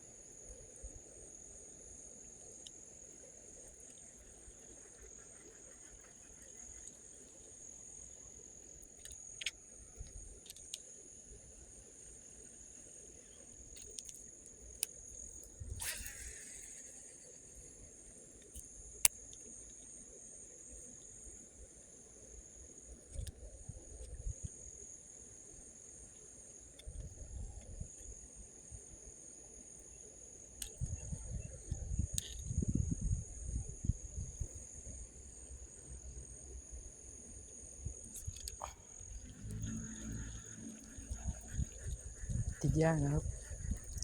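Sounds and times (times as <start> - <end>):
crickets trilling: 0.0 - 44.0
sharp click: 15.7 - 17.2.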